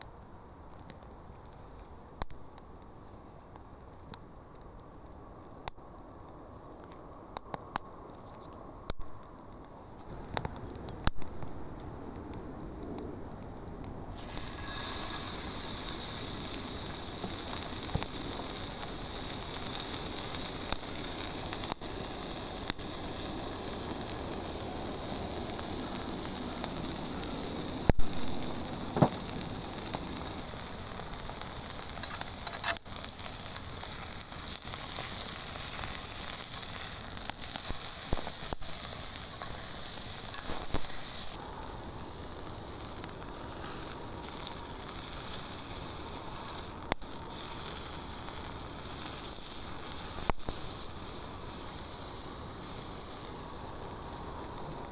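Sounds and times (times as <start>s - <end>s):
fire pops and crackles: 0.0s - 54.9s
steak sizzling on a griddle: 14.1s - 54.9s.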